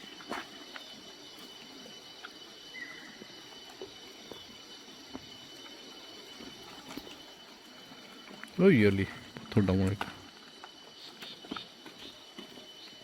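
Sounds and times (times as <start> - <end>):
footsteps on stony ground: 3.2 - 13.0.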